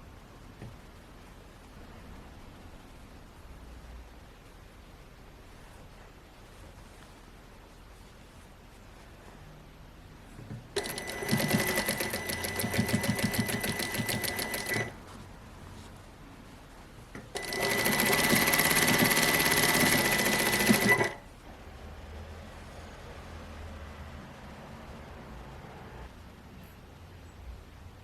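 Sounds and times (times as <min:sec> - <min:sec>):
sewing machine motor whine: 0:10.8 - 0:14.9, 0:17.3 - 0:21.2
sewing machine needle clatter: 0:10.8 - 0:14.9, 0:17.2 - 0:21.2.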